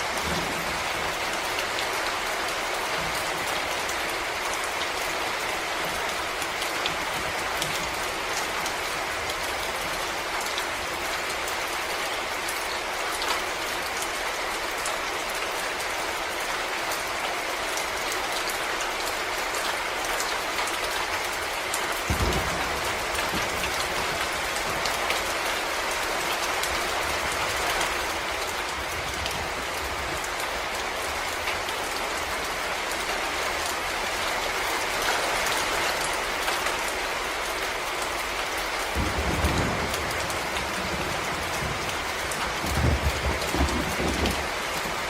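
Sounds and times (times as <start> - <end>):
rain on leaves: 0.0 - 45.0.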